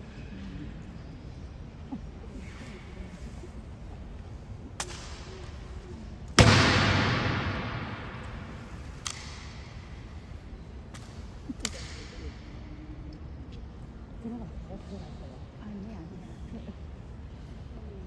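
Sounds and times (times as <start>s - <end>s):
rifle butt striking hard floor: 6.4s - 8.7s
light sharp clicks: 10.9s - 12.3s.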